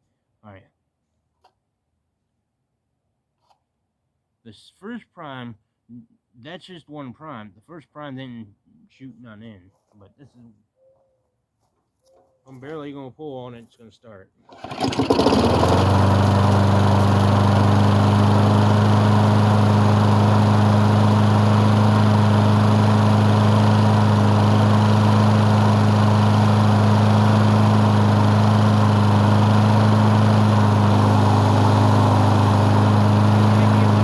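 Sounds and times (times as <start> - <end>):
lawn mower engine running: 14.5 - 34.0.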